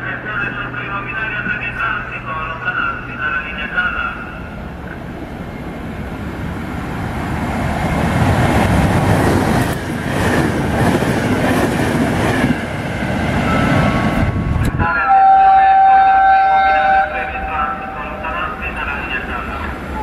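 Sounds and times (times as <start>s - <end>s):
train wheels running on rails: 0.1s - 14.9s.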